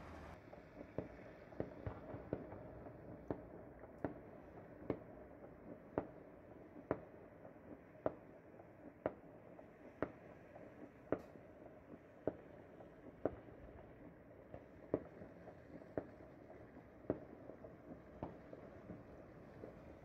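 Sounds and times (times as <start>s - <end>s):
low city hum: 0.0s - 3.2s
distant fireworks popping: 0.0s - 20.0s.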